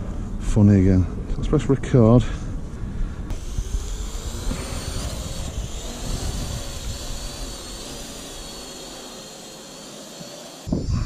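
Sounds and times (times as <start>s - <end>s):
wind rumbling on microphone: 2.5s - 8.5s, 10.7s - 11.0s
quadcopter propellers whining: 3.3s - 11.0s.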